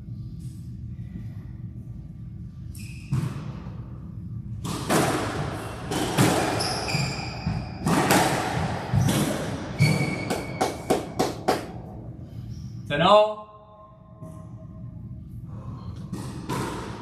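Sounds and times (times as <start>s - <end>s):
squash ball cracking off walls: 4.6s - 6.7s, 7.5s - 11.7s.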